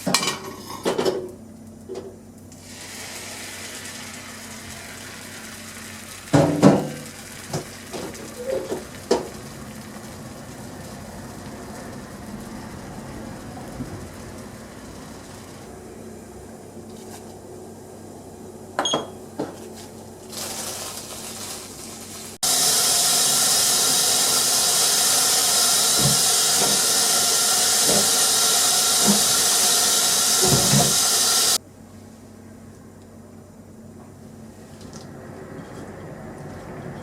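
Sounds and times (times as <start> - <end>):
tap water running into sink: 2.6 - 12.2, 22.4 - 31.6.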